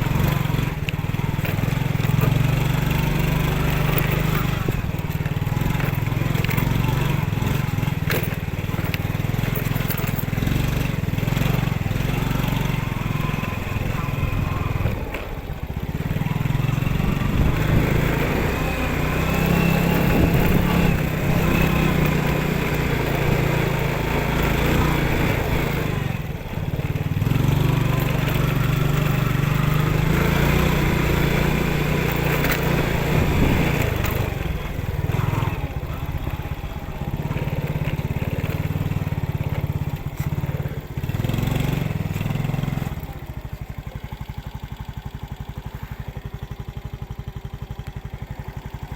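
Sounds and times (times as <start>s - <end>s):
motorcycle engine revving and idling: 0.0s - 48.9s.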